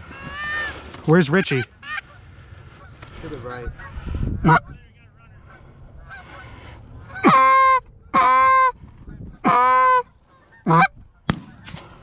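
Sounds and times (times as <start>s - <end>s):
goose call honks: 1.4s - 8.8s, 9.4s - 11.0s.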